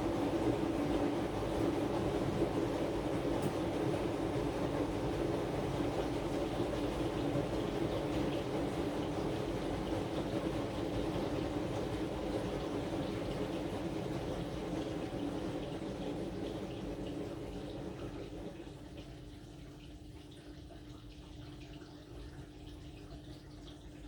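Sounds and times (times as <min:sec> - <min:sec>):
washing machine running: 0:00.0 - 0:24.0.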